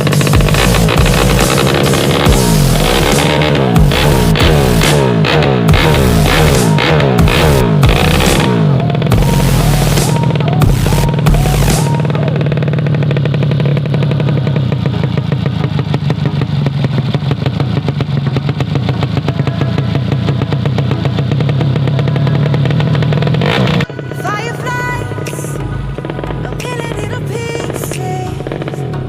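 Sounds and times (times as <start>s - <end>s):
music: 0.0s - 12.6s, 18.6s - 29.0s
motorcycle engine idling: 0.0s - 29.0s.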